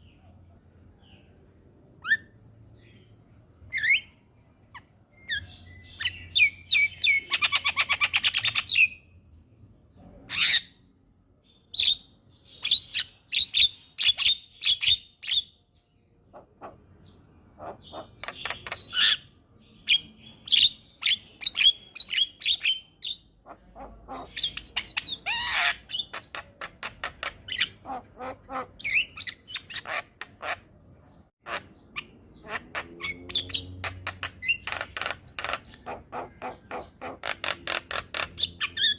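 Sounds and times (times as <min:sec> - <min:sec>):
myna chattering and squawking: 0:17.6 - 0:19.2, 0:23.4 - 0:30.6, 0:31.4 - 0:38.9.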